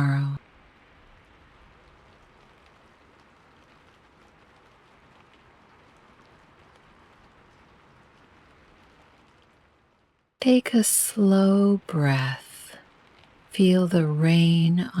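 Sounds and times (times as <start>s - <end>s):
faint steady rain: 0.0s - 15.0s.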